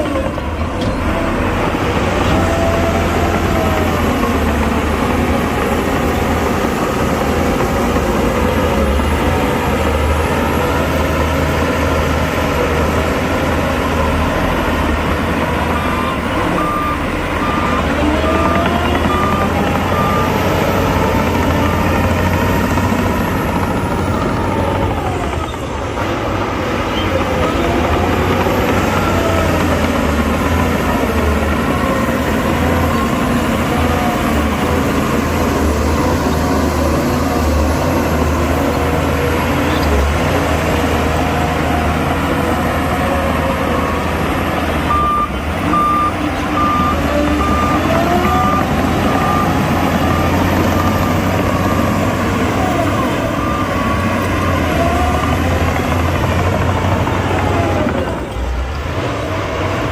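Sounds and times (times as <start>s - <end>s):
heavy machinery diesel engines: 0.0s - 59.9s
reversing alarm beeping: 13.0s - 26.0s, 42.0s - 58.2s.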